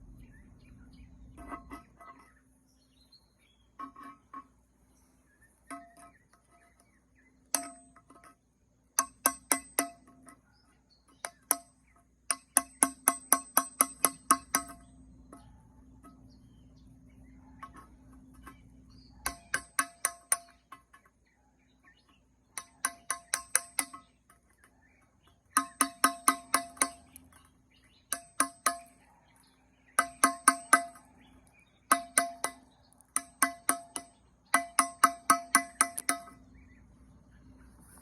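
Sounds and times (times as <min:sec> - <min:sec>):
sharp ringing strikes on ceramic: 0:30.0 - 0:31.1, 0:31.9 - 0:36.4.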